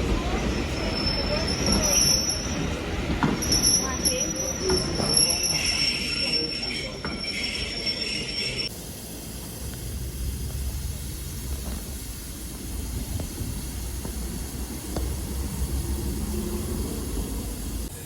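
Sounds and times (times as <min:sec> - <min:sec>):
train wheel squeal: 0:00.1 - 0:08.7
steam hiss: 0:06.4 - 0:18.0.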